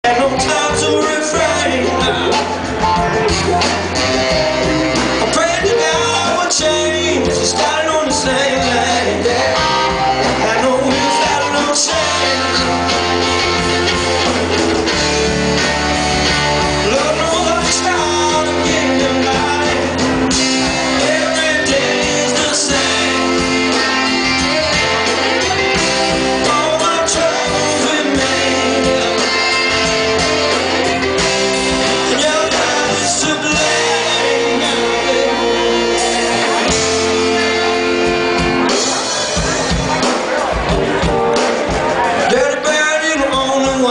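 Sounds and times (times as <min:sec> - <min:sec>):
person singing: 0:00.0 - 0:13.6, 0:16.6 - 0:43.9
bass line: 0:00.0 - 0:43.9
electric guitar: 0:00.0 - 0:43.9.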